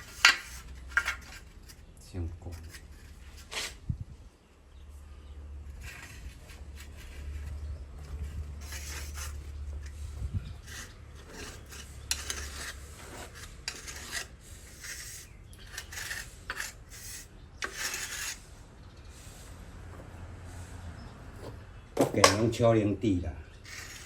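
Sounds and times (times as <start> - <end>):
rubbing and scraping on wood: 0.0 - 4.0, 5.6 - 22.7, 23.5 - 24.0.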